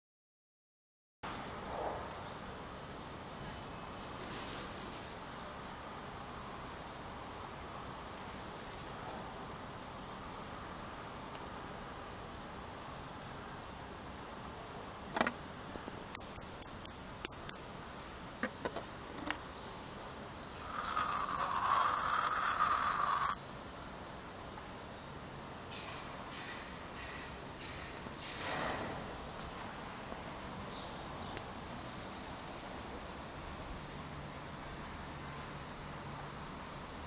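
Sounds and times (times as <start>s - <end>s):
ceramic teapot clinks: 16.2s - 17.7s.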